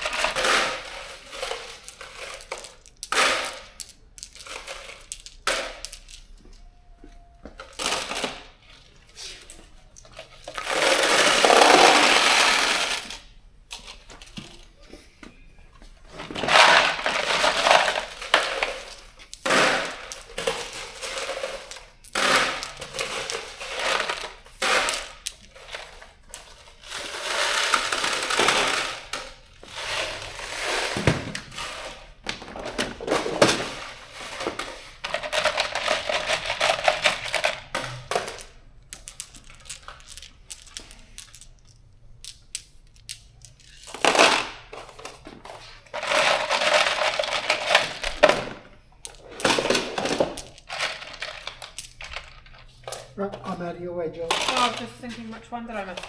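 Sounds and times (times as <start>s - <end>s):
metal bolts and nuts clinking: 16.3s - 45.2s, 45.9s - 53.2s.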